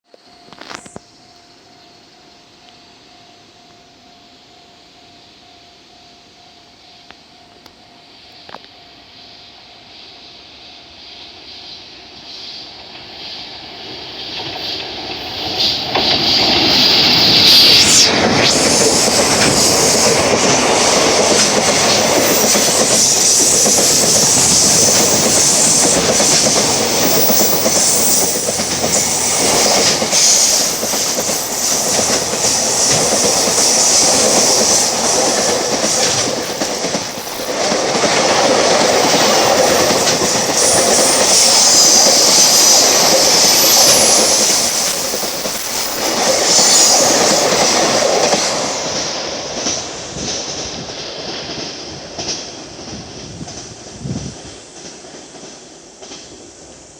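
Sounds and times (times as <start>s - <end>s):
high wheel squeal: 11.7s - 49.8s
train wheels clattering on rails: 12.8s - 56.9s.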